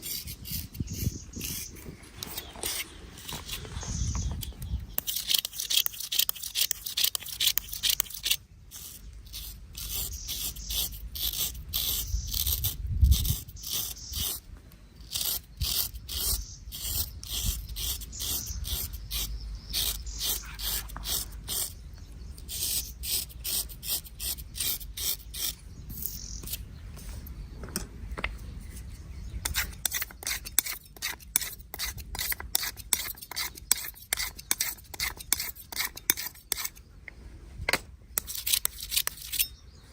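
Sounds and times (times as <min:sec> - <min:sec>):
razor scraping stubble: 0:00.0 - 0:27.4, 0:28.7 - 0:36.8, 0:38.2 - 0:39.6.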